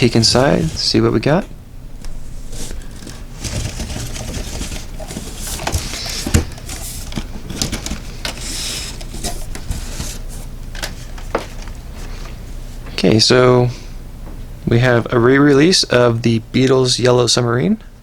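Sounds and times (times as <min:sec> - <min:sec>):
cardboard rustling and scraping: 0:00.0 - 0:12.4.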